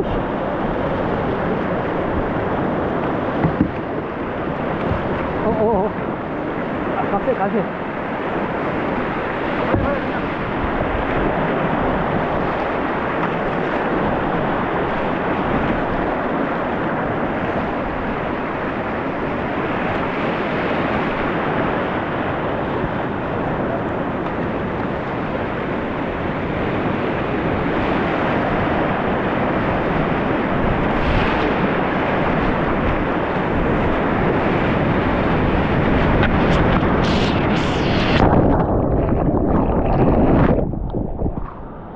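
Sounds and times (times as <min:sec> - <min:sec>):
wind buffeting microphone: 0:00.0 - 0:41.9
river whitewater rushing: 0:04.1 - 0:22.5.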